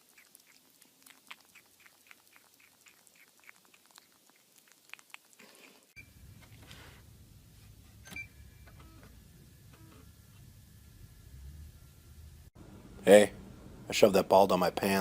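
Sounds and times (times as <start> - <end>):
pet chewing: 0.0 - 5.9
low steady hum: 6.0 - 15.0.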